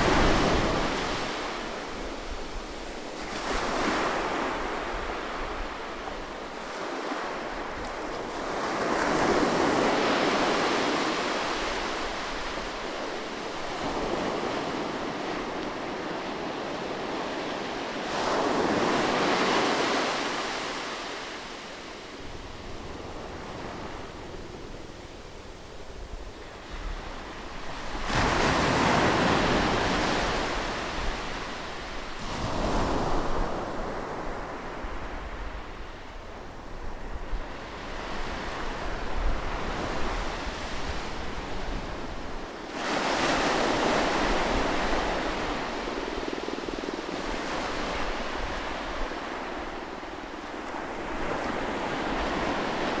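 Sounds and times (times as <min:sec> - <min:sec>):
sea waves breaking on shore: 0:00.0 - 0:35.3.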